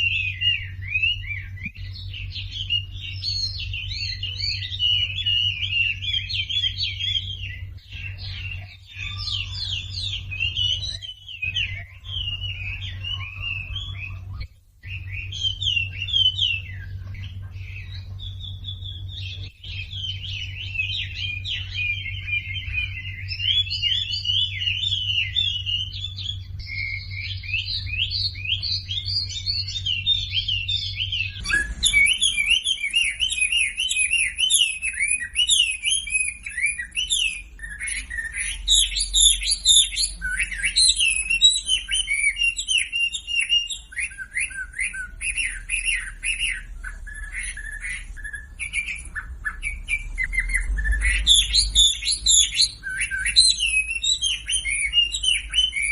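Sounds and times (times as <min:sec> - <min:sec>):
low hum: 0:00.0 - 0:33.8
bird chirping and twittering: 0:00.0 - 0:55.9.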